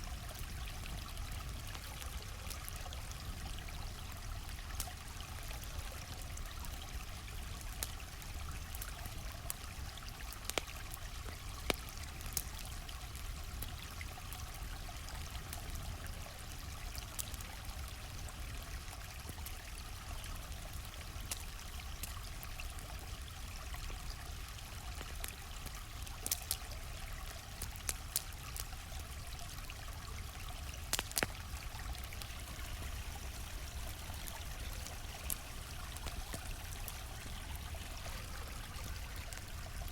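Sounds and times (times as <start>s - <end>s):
campfire crackling: 0.0s - 39.9s
stream flowing: 13.1s - 39.9s.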